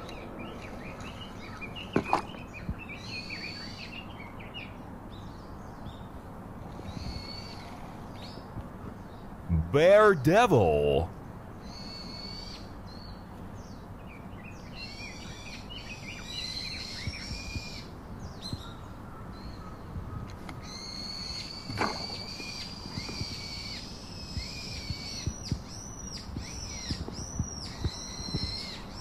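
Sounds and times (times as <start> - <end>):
songbirds chirping and warbling: 0.0 - 9.4
outdoor background noise: 0.0 - 29.0.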